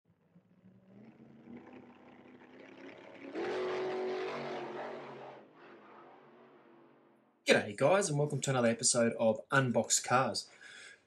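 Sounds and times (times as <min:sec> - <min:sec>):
car engine revving: 0:00.1 - 0:07.4.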